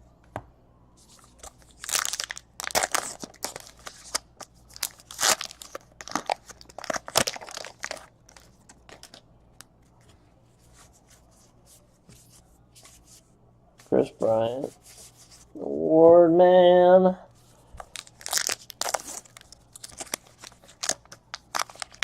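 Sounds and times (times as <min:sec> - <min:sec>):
wrappers tearing and crinkling: 0:01.4 - 0:09.2, 0:17.8 - 0:22.0.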